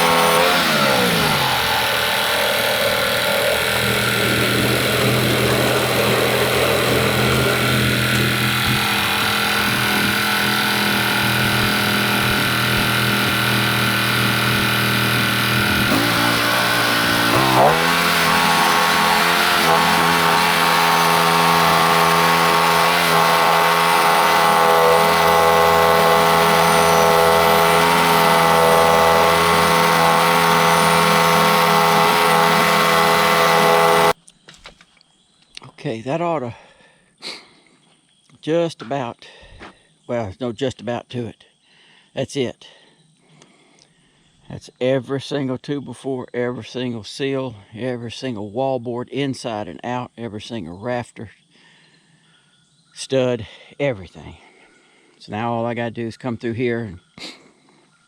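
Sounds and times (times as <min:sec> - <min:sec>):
bandsaw mill cutting log: 0:00.0 - 0:34.2.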